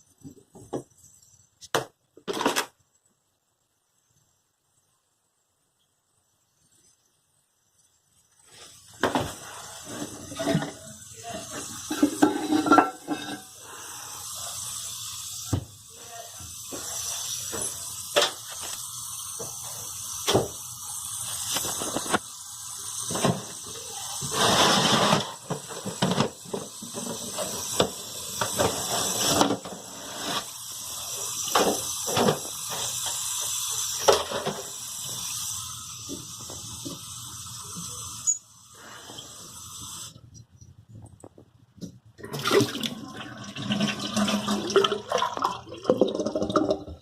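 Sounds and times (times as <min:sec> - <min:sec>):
toilet fill valve squealing hiss: 0:08.4 - 0:40.2
water running into tank: 0:08.5 - 0:40.2, 0:42.2 - 0:47.0.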